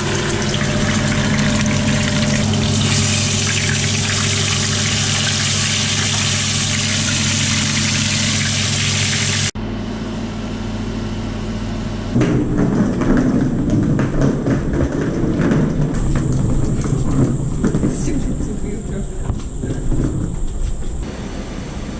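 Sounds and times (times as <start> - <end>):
engine running: 0.0 - 12.5, 21.0 - 21.9.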